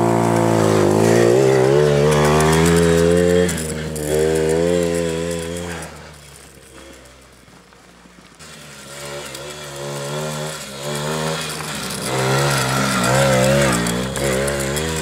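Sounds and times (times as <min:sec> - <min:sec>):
quad bike engine revving: 0:00.0 - 0:07.5, 0:08.4 - 0:15.0.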